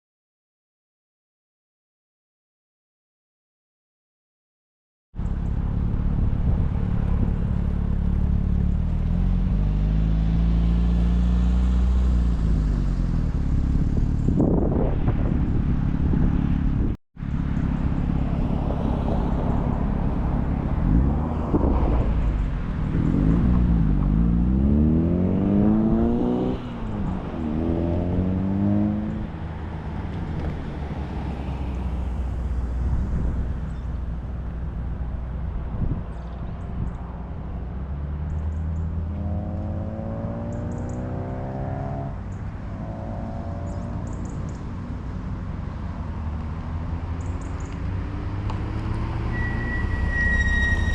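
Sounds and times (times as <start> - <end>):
car engines running at low revs: 5.2 - 41.4, 42.0 - 49.2
car engine revving: 18.1 - 35.3, 38.3 - 44.6.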